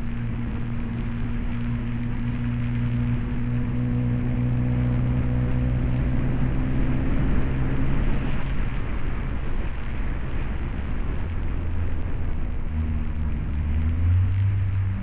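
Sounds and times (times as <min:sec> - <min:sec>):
tyre and wind noise on snow: 0:00.0 - 0:15.0.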